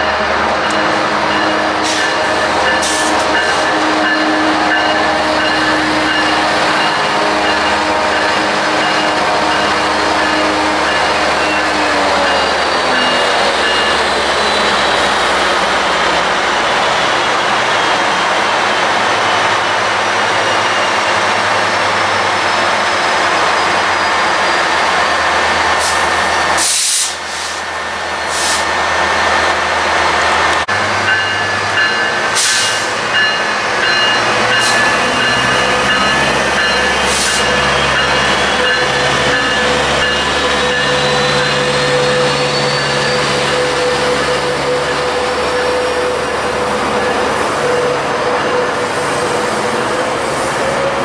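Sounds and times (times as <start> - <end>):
diesel locomotive engine droning: 0.0 - 51.0
air hiss: 26.6 - 27.7.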